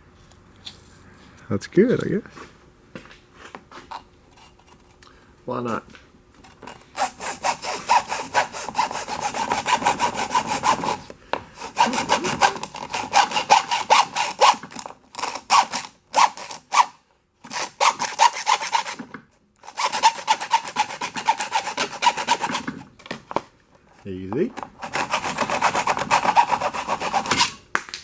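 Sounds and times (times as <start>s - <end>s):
hand saw rasping: 6.7s - 16.9s, 17.5s - 19.0s, 19.6s - 22.8s, 24.7s - 27.6s.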